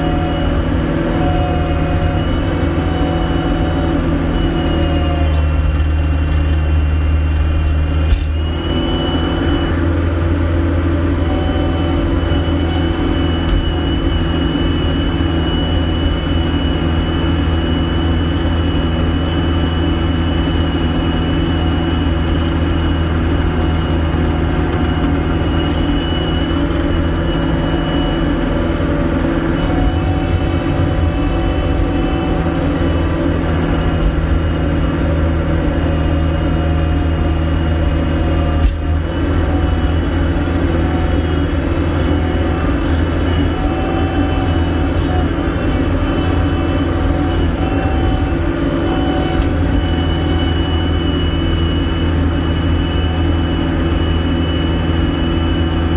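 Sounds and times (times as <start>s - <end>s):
diesel engine running: 0.0s - 55.9s
thin steady whine: 0.0s - 55.9s.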